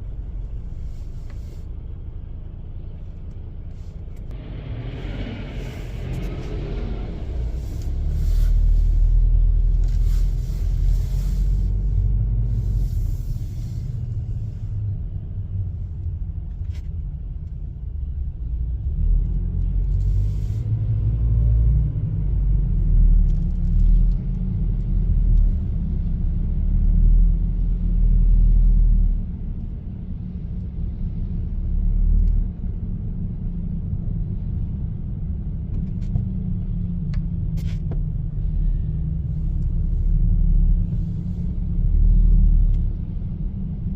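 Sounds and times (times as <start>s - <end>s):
car engine and road rumble: 0.0s - 43.9s.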